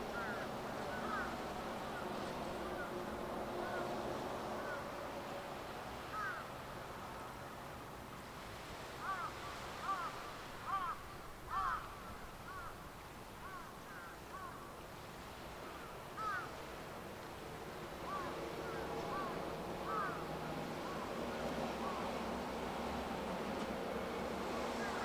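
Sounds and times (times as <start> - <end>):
steady background hiss: 0.0 - 25.0
bird calling: 0.1 - 1.4, 18.0 - 22.3, 24.6 - 25.0.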